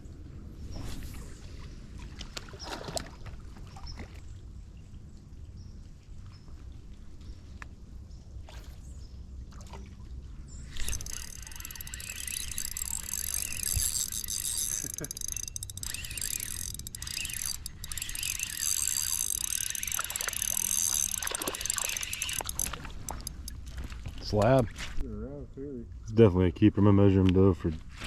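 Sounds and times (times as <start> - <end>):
fishing reel whirring: 10.7 - 24.6.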